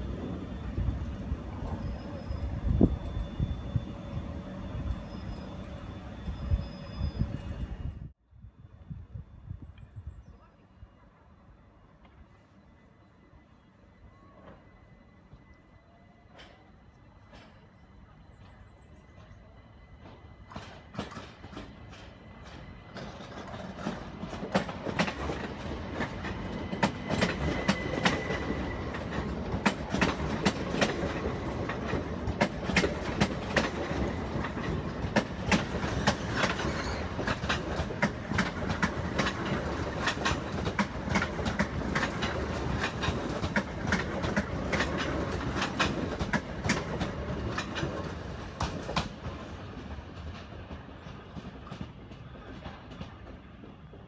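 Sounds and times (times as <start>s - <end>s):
train rumble: 0.0s - 54.0s
wheels clicking over rail joints: 20.0s - 49.4s.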